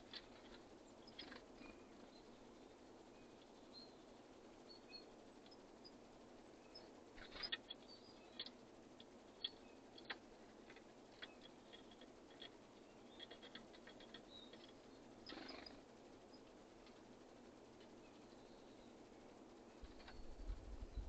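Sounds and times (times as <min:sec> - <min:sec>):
faint high bird chirps: 0:00.0 - 0:16.6, 0:17.9 - 0:21.0
beaks pecking: 0:00.0 - 0:19.0
rustle: 0:00.0 - 0:21.0.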